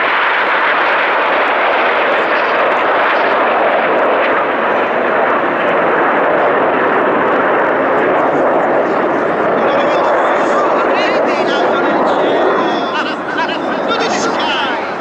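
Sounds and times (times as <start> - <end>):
jet aircraft engine rushing: 0.0 - 15.0.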